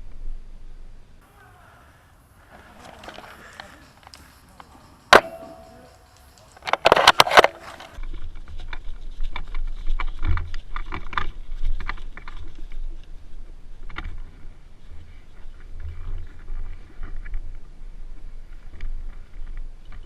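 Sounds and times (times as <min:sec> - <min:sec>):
handling clicks and rumbling: 0:02.8 - 0:08.0
airsoft rifle shot snap: 0:05.1 - 0:08.0
rifle bolt clacks: 0:05.1 - 0:08.0.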